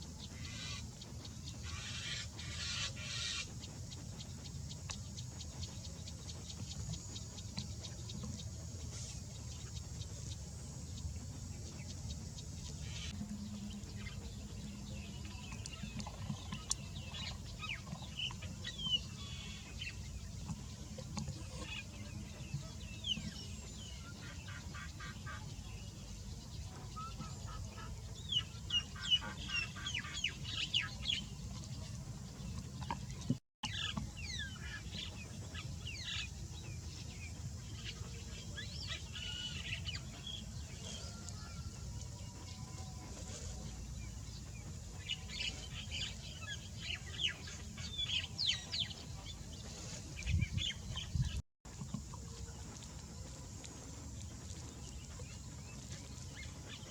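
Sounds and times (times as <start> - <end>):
birds chirping and calling: 0.0 - 10.0, 26.6 - 51.4.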